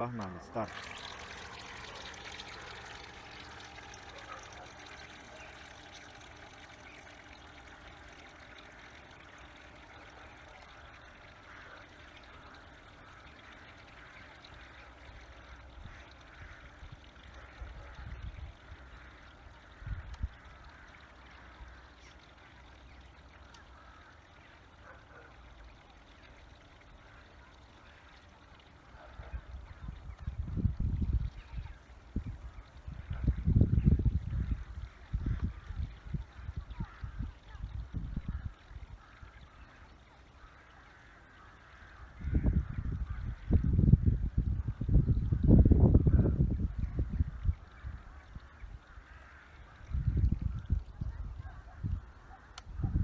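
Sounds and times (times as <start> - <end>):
model boat motor: 0.0 - 53.0
trickling water: 0.0 - 53.0
wind gusts on microphone: 42.2 - 47.6.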